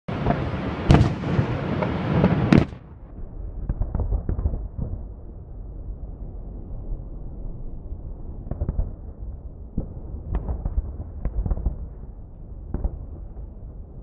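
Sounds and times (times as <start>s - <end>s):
fireworks crackling and banging: 0.1s - 5.1s, 9.8s - 13.6s
faint low firework booms: 0.1s - 5.2s.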